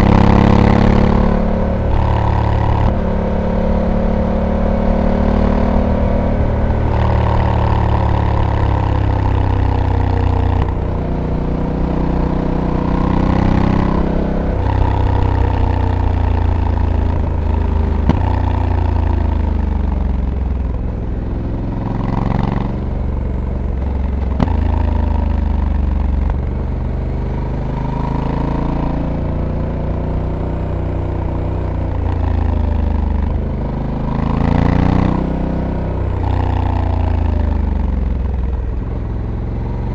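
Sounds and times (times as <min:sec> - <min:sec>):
gear changes: 0:00.0 - 0:26.8
motorcycle engine revving: 0:00.0 - 0:39.9.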